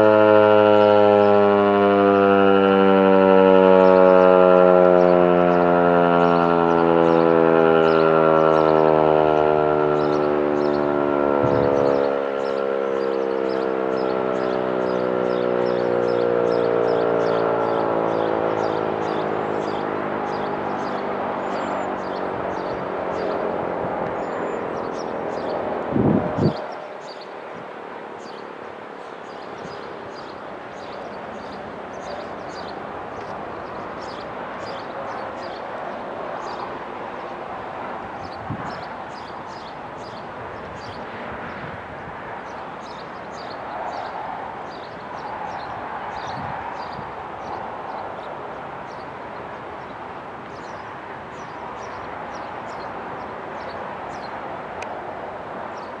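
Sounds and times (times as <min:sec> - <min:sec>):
distant traffic noise: 0:00.0 - 0:56.0
outdoor background rush: 0:00.0 - 0:56.0
wind: 0:00.0 - 0:56.0
small birds chirping: 0:11.5 - 0:23.5, 0:28.2 - 0:37.4, 0:38.2 - 0:41.7, 0:42.4 - 0:54.4.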